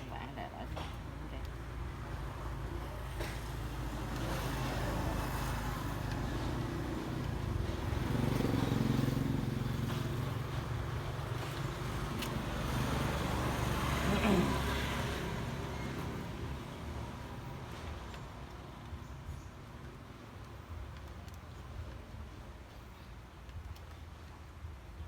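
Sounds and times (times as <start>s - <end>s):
road vehicle rumble: 0.0s - 25.0s
faint clicks: 20.4s - 22.2s.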